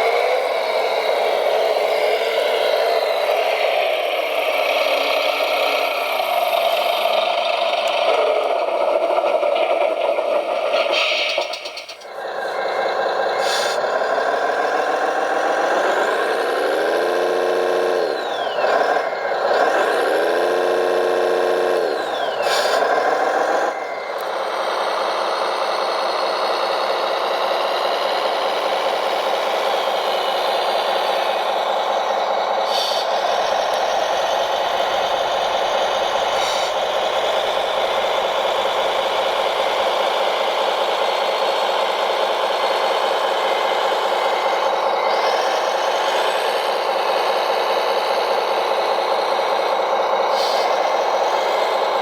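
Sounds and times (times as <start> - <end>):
model vehicle motor whining: 12.1 - 24.4.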